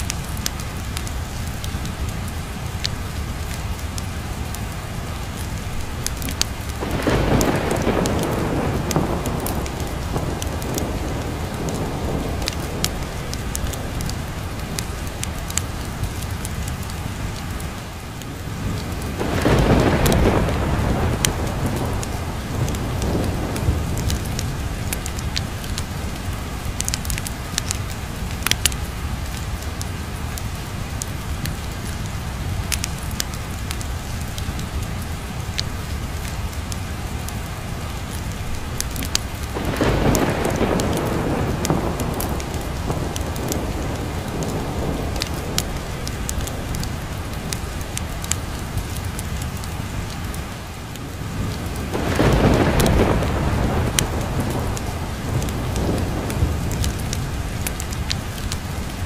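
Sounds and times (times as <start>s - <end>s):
sharp crackles: 0.0s - 59.0s
steady rain: 0.0s - 59.0s
rolling thunder: 6.0s - 17.0s, 18.4s - 28.0s, 38.8s - 50.2s, 51.1s - 59.0s.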